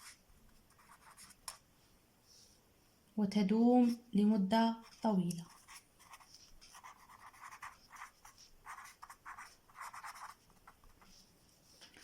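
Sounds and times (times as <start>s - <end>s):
pen scratching on surface: 0.0s - 1.6s, 4.8s - 11.3s.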